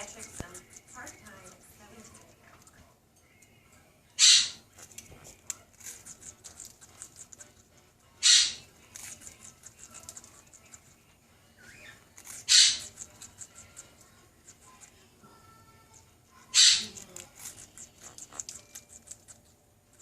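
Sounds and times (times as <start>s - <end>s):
parrot crunching cracker: 0.0s - 3.6s, 4.4s - 15.0s, 16.4s - 20.0s
parrot harsh calls: 4.2s - 4.6s, 8.2s - 8.7s, 11.6s - 12.9s, 16.5s - 17.0s.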